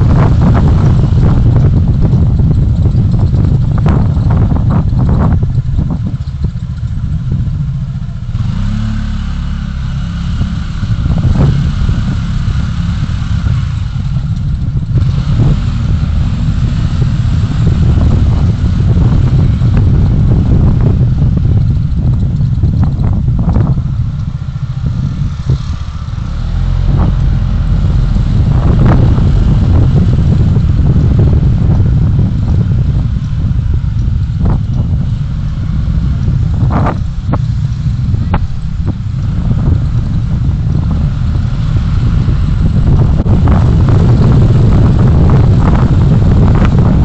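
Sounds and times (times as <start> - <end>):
road and wind noise: 0.0 - 47.0
sharp knocks and rattles: 0.1 - 8.2.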